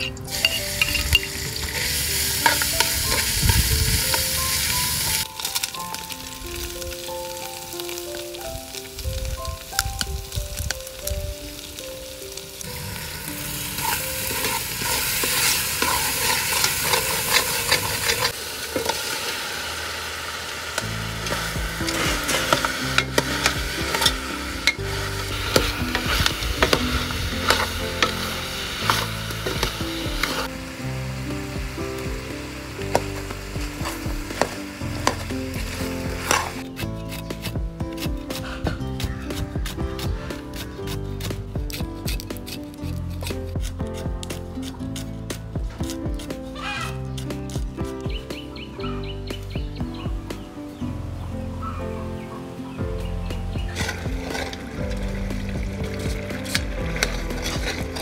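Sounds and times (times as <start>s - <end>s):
food sizzling in oil: 0.0s - 41.3s, 53.3s - 58.0s
spatula stirring in pot: 13.6s - 19.1s, 21.2s - 30.5s.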